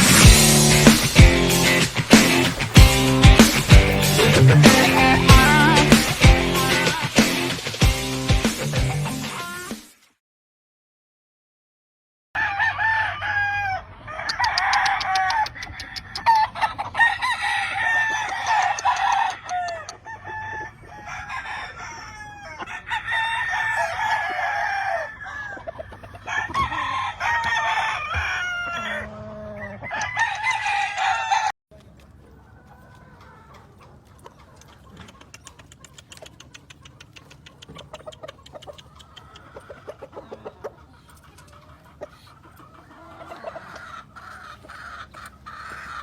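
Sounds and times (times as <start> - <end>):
roosters crowing: 0.0 - 8.2, 12.4 - 31.5, 37.0 - 46.0.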